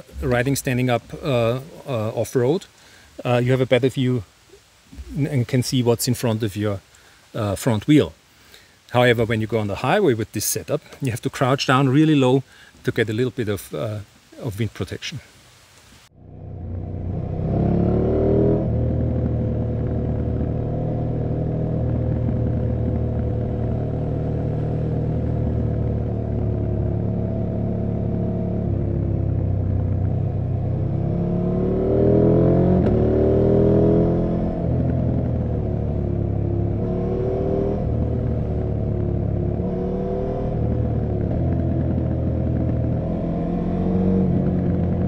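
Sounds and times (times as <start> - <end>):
motorcycle engine running: 16.2 - 45.0.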